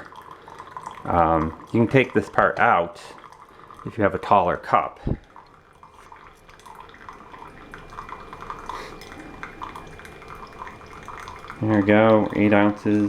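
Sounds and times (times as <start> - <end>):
coffee trickling and dripping: 0.0 - 13.0
faint steady tone: 0.0 - 13.0.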